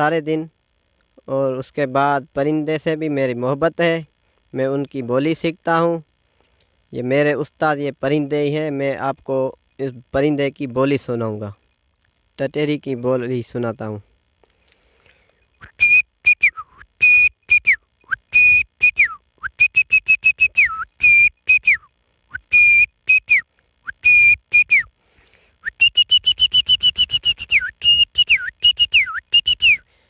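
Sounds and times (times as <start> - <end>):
man whistling bird call: 15.6 - 24.9, 25.6 - 29.9.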